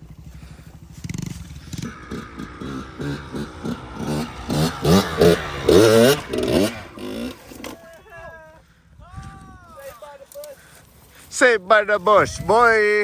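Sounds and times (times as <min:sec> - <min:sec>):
dirt bike engine revving: 0:00.4 - 0:07.9.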